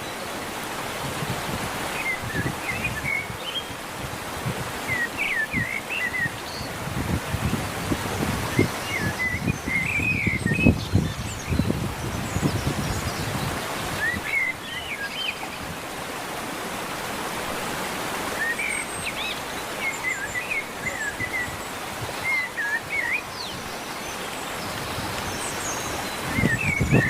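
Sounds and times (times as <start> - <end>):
small birds chirping: 1.9 - 3.8, 4.9 - 6.8, 18.3 - 27.0.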